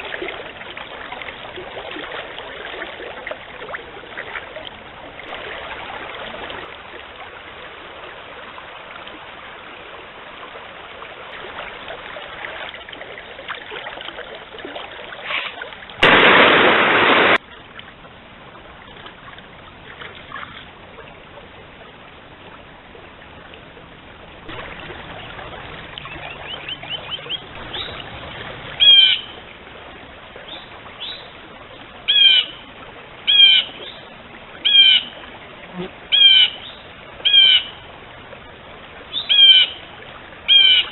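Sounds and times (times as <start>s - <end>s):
stream running: 0.0s - 40.9s
loud rush of noise: 16.0s - 17.4s
bird calls: 26.0s - 28.0s, 28.8s - 29.3s, 36.1s - 37.7s, 39.1s - 39.8s, 40.5s - 40.9s.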